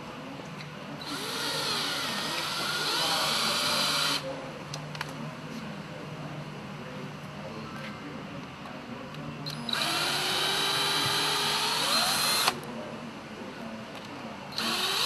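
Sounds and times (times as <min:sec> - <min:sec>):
power tool running: 0:01.0 - 0:04.2, 0:09.5 - 0:12.6, 0:14.6 - 0:15.0.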